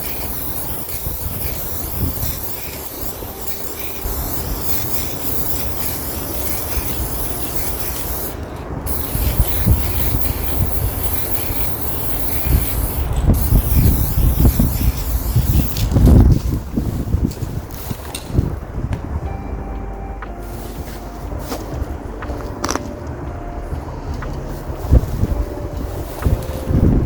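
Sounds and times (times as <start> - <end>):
spray paint can hissing: 0.0 - 18.6, 24.2 - 27.0
wind gusting on microphone: 0.0 - 27.0.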